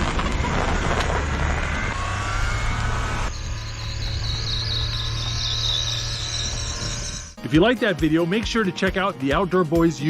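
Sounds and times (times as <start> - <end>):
faint rising whine: 0.0 - 7.4
high steady buzz: 0.4 - 7.4.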